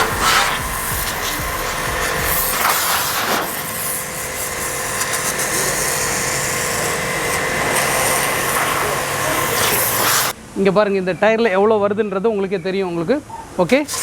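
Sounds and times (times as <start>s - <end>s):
pressure washer motor whining: 0.0s - 10.4s
water jet hissing on tyre: 0.0s - 10.4s.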